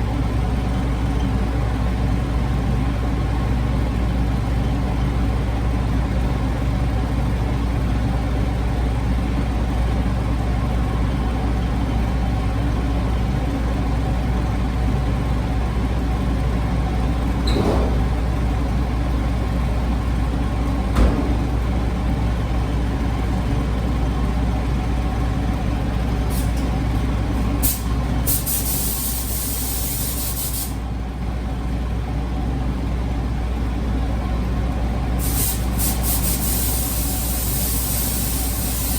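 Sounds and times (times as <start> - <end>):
low machine drone: 12.1 - 28.3
air hisses from spray gun: 27.6 - 30.8, 35.2 - 38.9.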